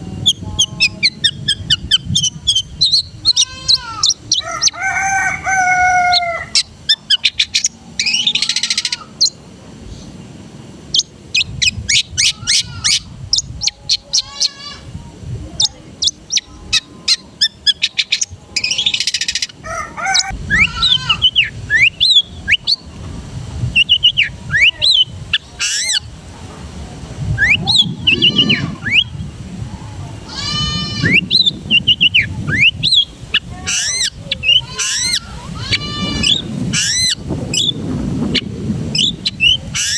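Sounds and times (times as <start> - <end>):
shrike singing varied song: 0.0 - 26.3, 27.2 - 39.9.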